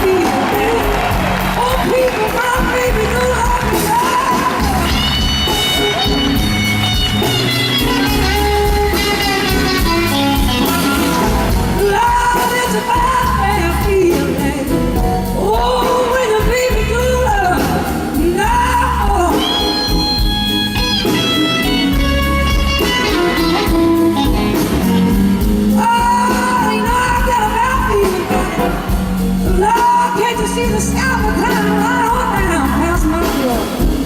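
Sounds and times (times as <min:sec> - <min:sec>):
blues band playing live: 0:00.0 - 0:34.0
electric guitar lead bending notes: 0:03.6 - 0:11.8.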